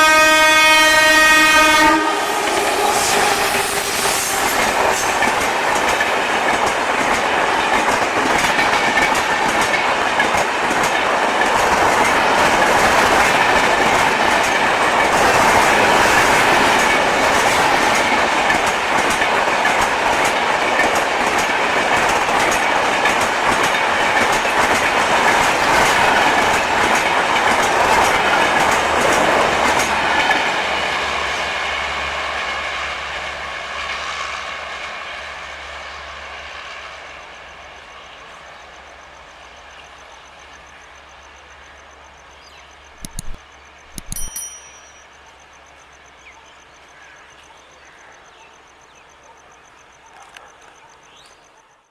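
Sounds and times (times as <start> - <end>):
train coaches rushing past: 0.0 - 46.2
wheels clattering over rail joints: 4.5 - 30.6.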